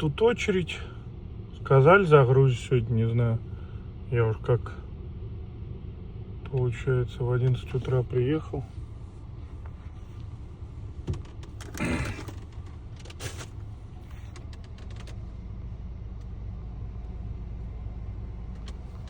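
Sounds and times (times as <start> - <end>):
diesel engine idling: 0.0 - 19.0
brief rustle: 11.3 - 15.2.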